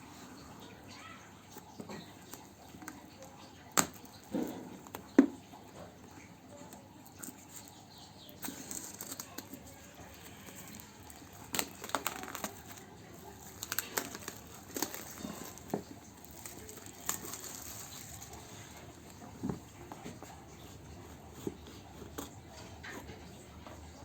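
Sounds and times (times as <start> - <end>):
packaging crinkling and rustling: 7.2 - 23.2.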